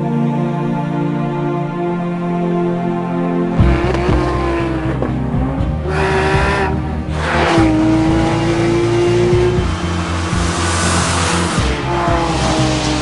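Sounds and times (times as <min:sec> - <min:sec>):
sports car engine revving: 0:03.6 - 0:13.0
tyre and road noise: 0:03.6 - 0:13.0.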